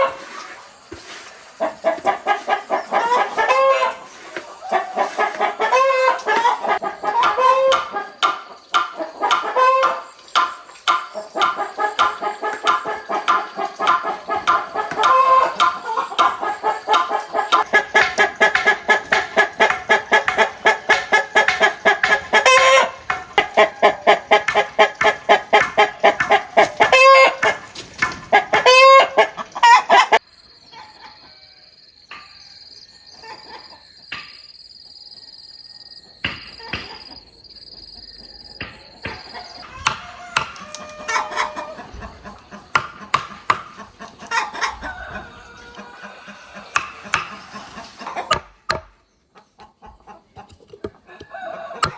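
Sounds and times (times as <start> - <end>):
chickens clucking: 0.0 - 31.5, 33.1 - 34.3, 36.0 - 51.9
scattered knocks: 17.6 - 28.7, 42.7 - 43.8.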